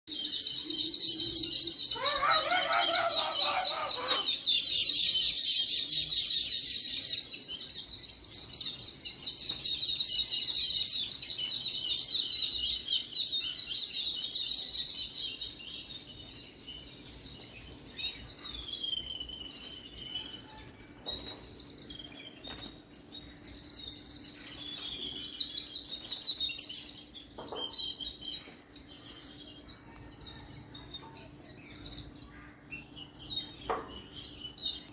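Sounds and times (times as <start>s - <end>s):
small birds chirping: 0.1s - 34.9s
harsh bird call: 1.8s - 4.7s.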